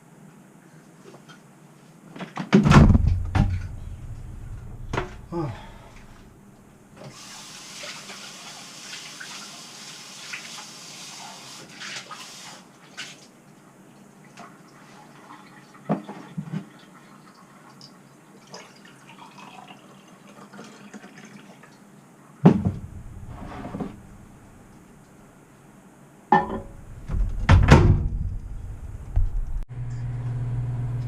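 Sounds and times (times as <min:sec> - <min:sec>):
water running into container: 0:18.4 - 0:21.7.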